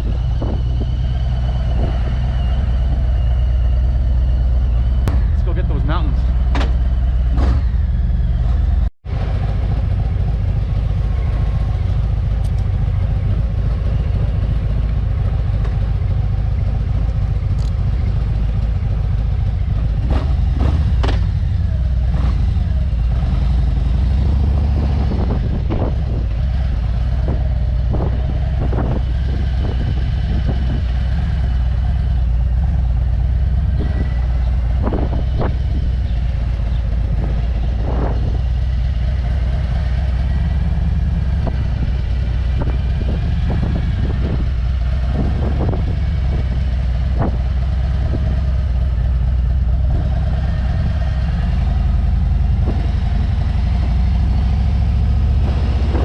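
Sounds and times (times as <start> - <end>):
wind rushing over microphone: 0.0 - 3.1, 22.2 - 32.4, 33.4 - 48.6, 50.8 - 56.0
motorcycle engine running: 0.0 - 56.0.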